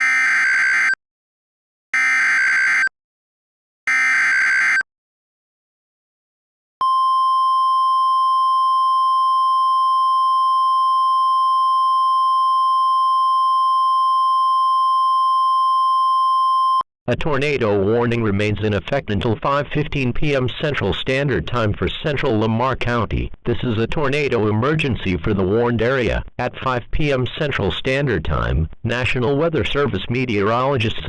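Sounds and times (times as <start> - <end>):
steady alarm tone: 0.0 - 1.0, 2.0 - 2.9, 3.9 - 4.8.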